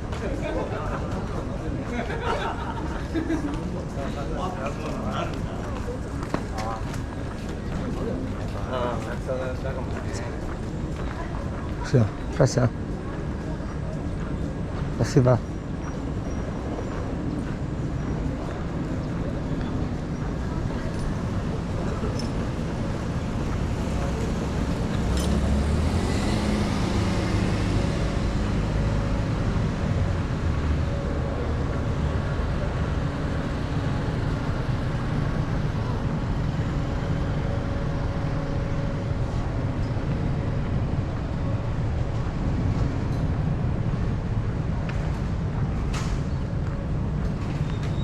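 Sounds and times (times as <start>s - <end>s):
rumble of road traffic: 0.0s - 48.0s
vehicle passing close: 22.4s - 42.7s.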